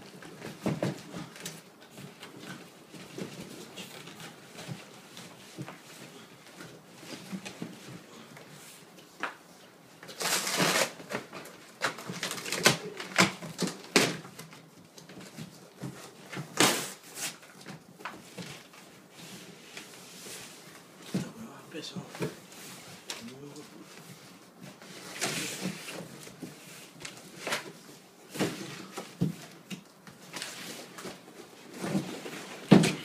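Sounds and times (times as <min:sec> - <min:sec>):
packaging rustling: 0:10.0 - 0:17.6
clicks and knocks of unpacking: 0:10.0 - 0:18.7.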